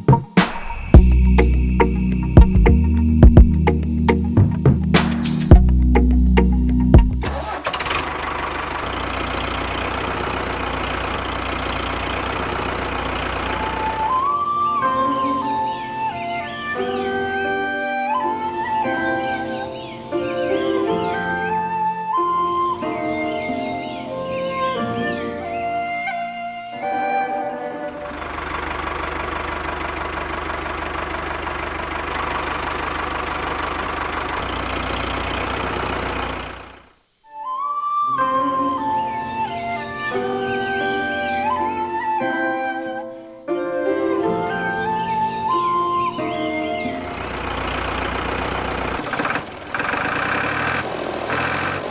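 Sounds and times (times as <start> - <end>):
flute melody: 0.0 - 7.6, 9.2 - 29.7, 37.3 - 49.0
small engine rattling: 7.2 - 16.4, 25.8 - 37.0, 44.0 - 51.9.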